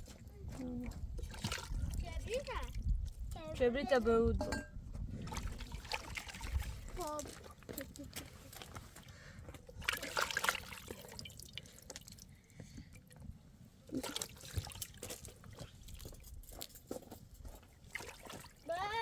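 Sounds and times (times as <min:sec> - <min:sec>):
water trickling and dripping: 0:00.0 - 0:08.8, 0:09.6 - 0:13.3, 0:17.8 - 0:19.0
small water splashes: 0:00.5 - 0:03.2, 0:05.2 - 0:09.0, 0:09.7 - 0:13.2, 0:13.8 - 0:16.7, 0:17.8 - 0:19.0.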